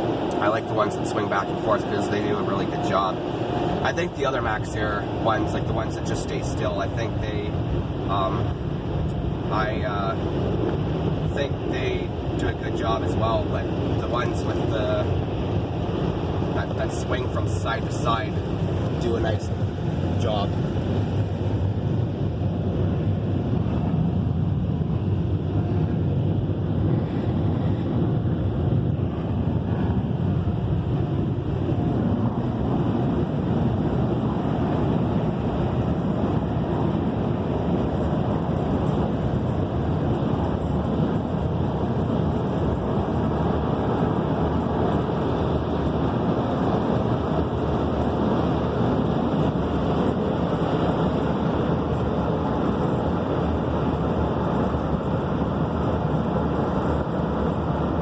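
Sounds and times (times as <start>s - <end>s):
car wash dryers blowing air: 0.0s - 58.0s.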